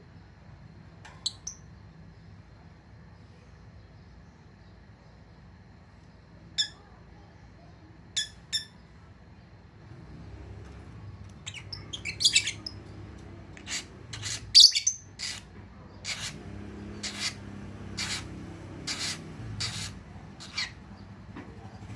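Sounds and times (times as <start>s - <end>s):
bird chirping: 1.1s - 1.9s, 8.1s - 9.0s, 10.6s - 21.9s.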